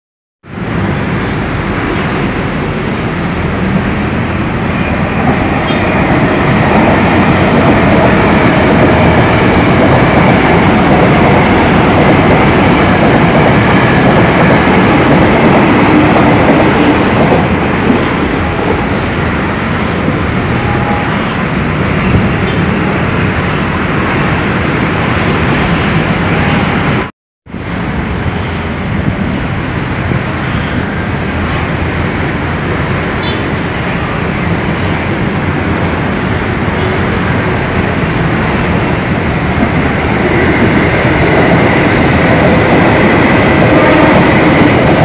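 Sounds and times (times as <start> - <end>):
train rumbling on tracks: 0.4 - 45.0.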